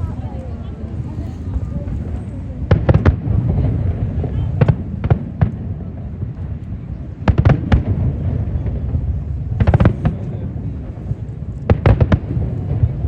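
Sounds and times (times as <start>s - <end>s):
fireworks bursting with bangs: 0.0s - 13.0s
low rolling rumble: 0.0s - 13.0s.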